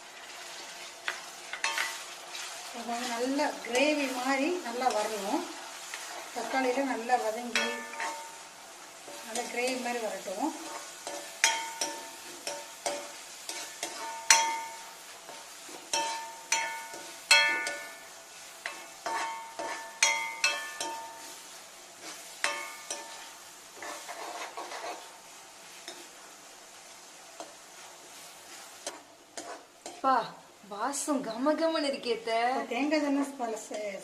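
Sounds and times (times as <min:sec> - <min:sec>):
light sizzle of frying: 0:00.0 - 0:34.0
spoon clinking against pan: 0:07.5 - 0:08.3, 0:11.0 - 0:14.8, 0:15.9 - 0:21.3, 0:22.4 - 0:23.3.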